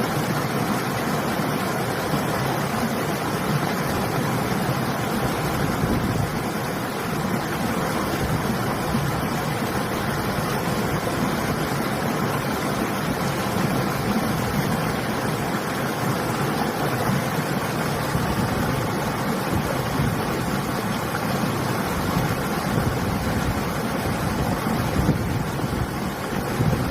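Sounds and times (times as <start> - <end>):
river rushing: 0.0 - 26.9
wind: 0.0 - 26.9.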